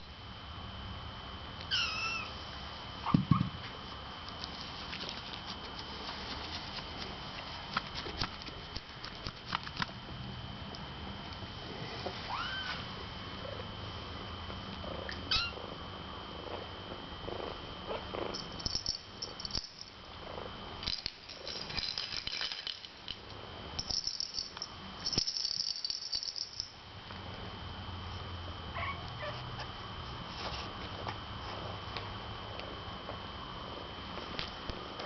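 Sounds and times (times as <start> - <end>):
kittens mewing: 1.7 - 2.3, 15.1 - 15.6.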